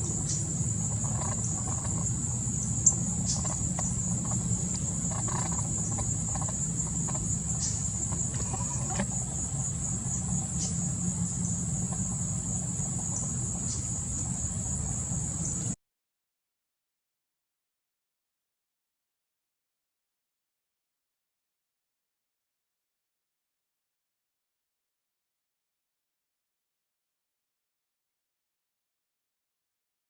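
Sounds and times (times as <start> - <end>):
high-pitched insect chorus: 0.0 - 15.8
low steady rumble: 0.0 - 15.8.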